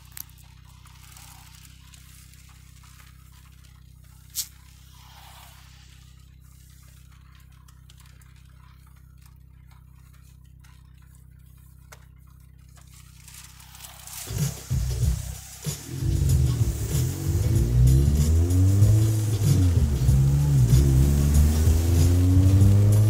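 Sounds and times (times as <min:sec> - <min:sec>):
car cabin drone: 0:00.0 - 0:23.0
faint ticks on car body: 0:06.1 - 0:13.6
music: 0:13.9 - 0:23.0.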